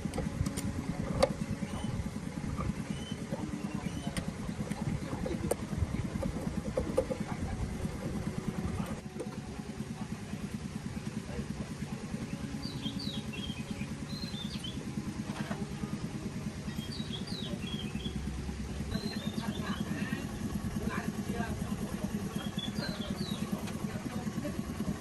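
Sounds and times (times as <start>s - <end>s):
engine throbbing: 0.0s - 25.0s
small birds chirping: 1.4s - 8.6s, 12.1s - 14.9s, 16.6s - 23.7s.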